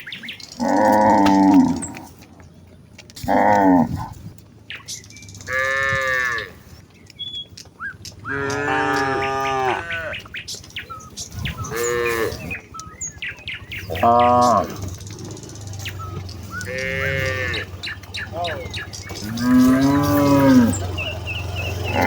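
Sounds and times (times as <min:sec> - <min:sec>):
cows mooing: 0:00.6 - 0:02.3, 0:03.2 - 0:04.2, 0:05.4 - 0:06.8, 0:08.2 - 0:10.4, 0:11.1 - 0:22.0.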